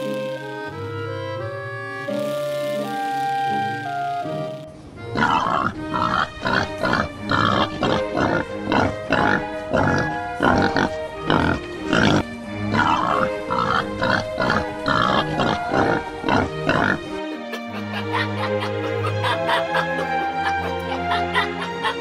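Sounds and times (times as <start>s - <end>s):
background music: 0.0s - 22.0s
pigs grunting: 5.1s - 17.1s.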